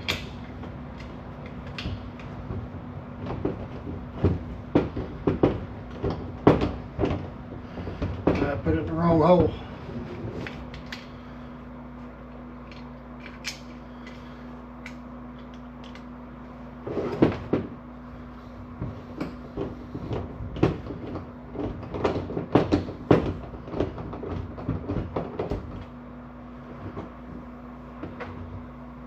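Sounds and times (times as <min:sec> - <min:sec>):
parts and tools clicking: 0:00.0 - 0:02.4, 0:10.4 - 0:11.1, 0:12.3 - 0:16.1
steady low hum: 0:00.0 - 0:29.0.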